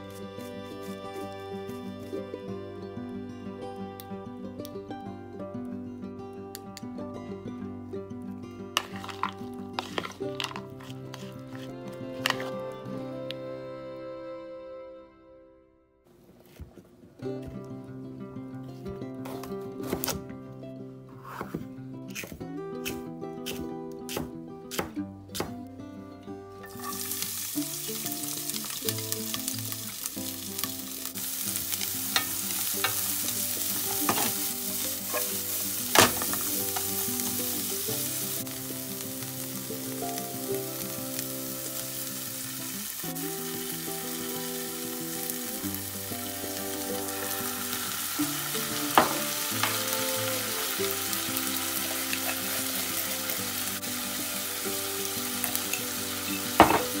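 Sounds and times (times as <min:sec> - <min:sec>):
food sizzling in frying pan: 0:08.8 - 0:12.6, 0:26.6 - 0:57.0.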